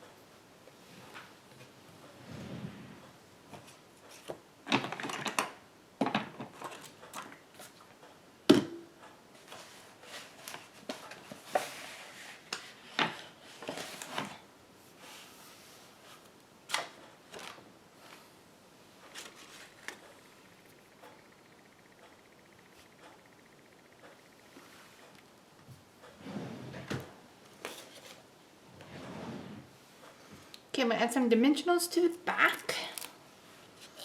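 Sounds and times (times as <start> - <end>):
paper rustling and clicking: 19.0 - 20.1.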